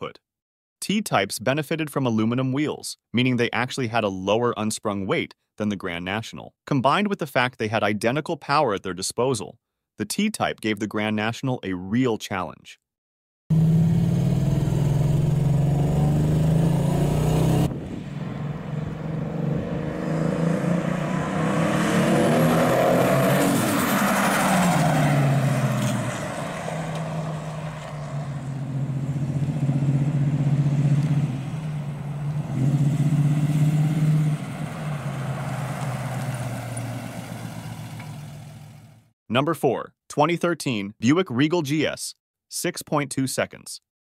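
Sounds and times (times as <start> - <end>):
car engine droning: 13.5 - 39.0.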